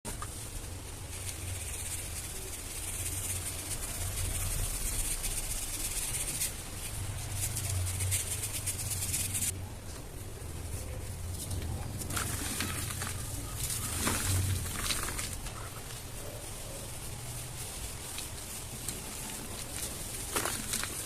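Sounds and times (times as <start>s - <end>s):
dry dirt crumbling and crunching: 11.2s - 17.2s, 18.0s - 21.0s.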